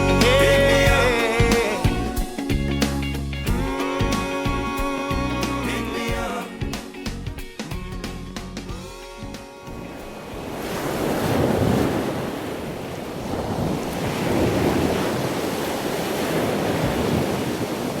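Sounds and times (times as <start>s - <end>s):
ocean waves washing in: 9.6s - 18.0s.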